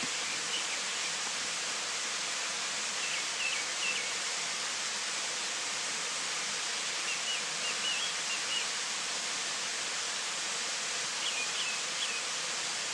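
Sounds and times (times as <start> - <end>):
steady outdoor hiss: 0.0 - 12.9.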